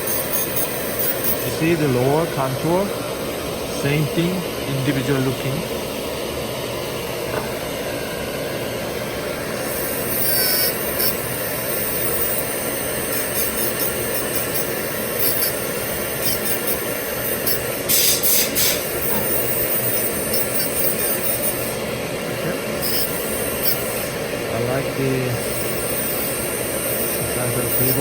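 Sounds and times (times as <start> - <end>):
rotary handpiece motor whir: 0.0 - 2.3, 9.3 - 22.0, 22.7 - 24.3, 25.4 - 28.0
high-pitched grinding hiss: 0.0 - 5.6, 9.2 - 28.0.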